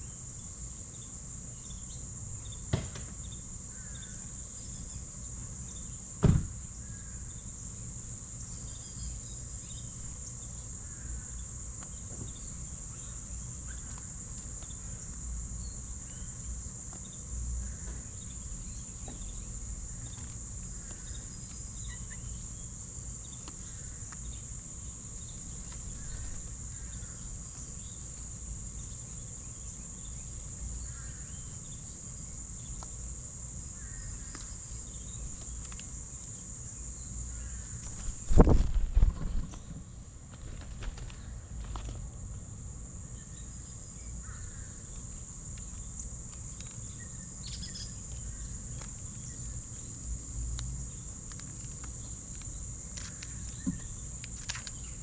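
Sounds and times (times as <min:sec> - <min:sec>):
insects trilling: 0:00.0 - 0:55.0
sharp knock: 0:06.2 - 0:06.5
faint bird chirps: 0:08.4 - 0:24.4, 0:46.8 - 0:48.5.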